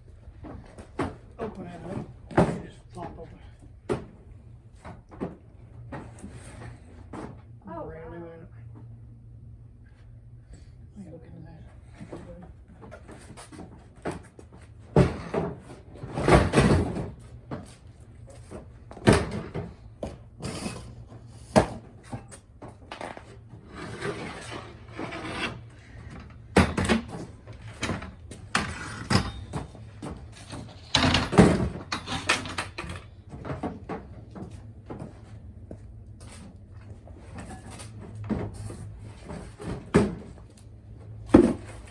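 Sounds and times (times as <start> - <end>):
objects knocking and bumping: 12.8 - 35.3.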